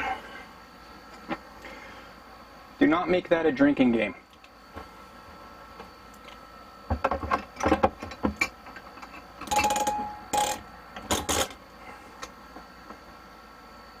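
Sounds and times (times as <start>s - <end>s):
hand tools clicking and knocking: 7.1s - 11.6s.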